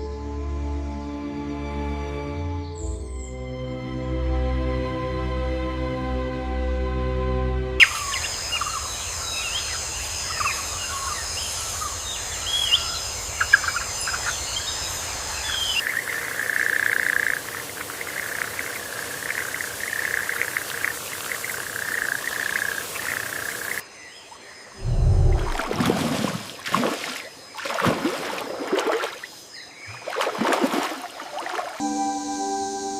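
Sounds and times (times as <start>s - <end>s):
bird chirps: 7.8s - 17.4s
chirring chorus of insects: 7.8s - 24.8s, 25.6s - 31.2s
low rumble: 24.8s - 26.0s.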